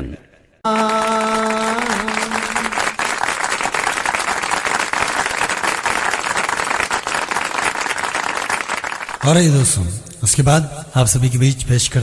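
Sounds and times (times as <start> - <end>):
audience applauding: 0.7 - 9.4.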